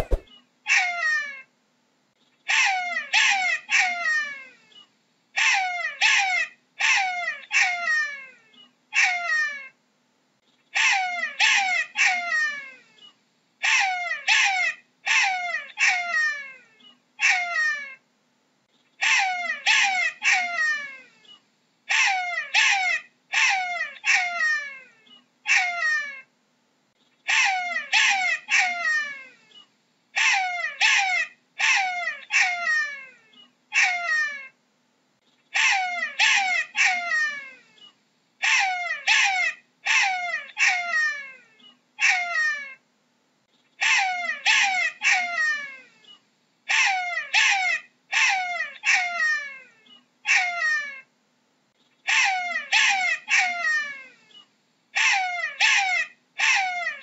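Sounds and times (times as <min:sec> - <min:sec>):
jackal yelping: 0:00.0 - 0:01.0, 0:21.9 - 0:24.8, 0:25.4 - 0:26.2, 0:27.3 - 0:29.3, 0:30.2 - 0:33.1, 0:35.5 - 0:37.6, 0:38.4 - 0:41.4, 0:42.0 - 0:42.8, 0:43.8 - 0:45.8, 0:46.7 - 0:51.1, 0:52.1 - 0:54.1, 0:55.0 - 0:57.0.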